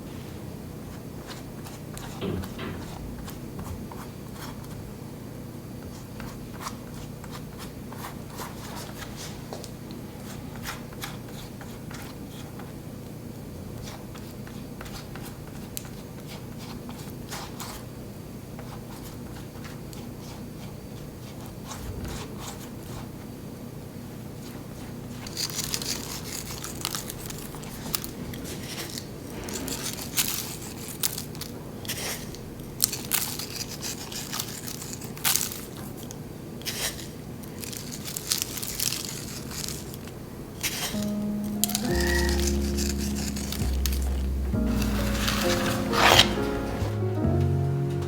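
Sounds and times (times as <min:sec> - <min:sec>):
steady low hum: 0:42.5 - 0:48.0.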